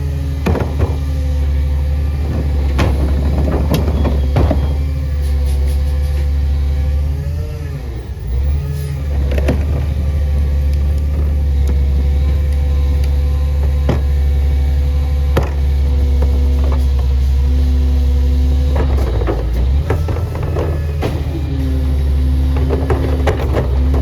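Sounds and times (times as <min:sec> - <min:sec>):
garbage truck engine droning: 0:00.0 - 0:24.0
sharp knocks: 0:00.3 - 0:05.0.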